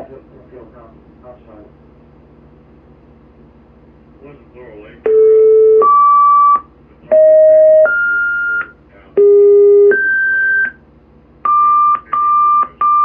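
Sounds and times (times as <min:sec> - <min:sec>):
short beeps: 0:05.1 - 0:10.8
two-tone paging tones: 0:05.1 - 0:10.8.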